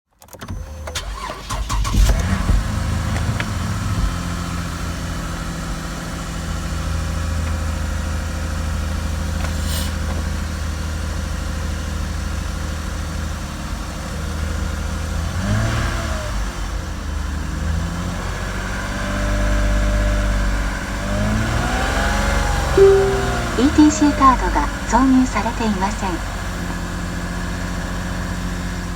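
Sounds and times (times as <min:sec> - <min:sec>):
car engine starting and idling: 0:00.4 - 0:04.1.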